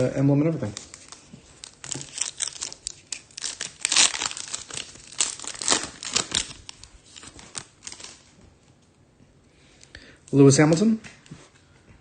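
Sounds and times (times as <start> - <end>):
foil wrapper tearing and crinkling: 0.6 - 8.3.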